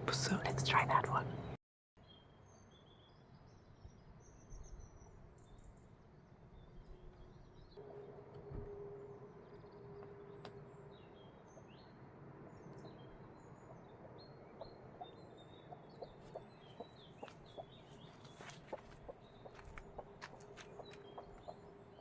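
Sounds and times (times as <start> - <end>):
faint steady hum: 0.0 - 1.6.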